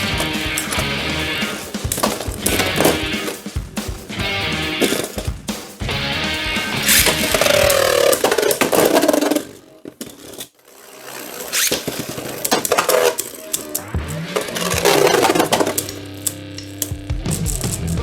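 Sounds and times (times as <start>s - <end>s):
spinning tops clattering: 0.0s - 3.6s, 6.7s - 18.0s
rock music: 0.0s - 8.7s, 12.7s - 18.0s.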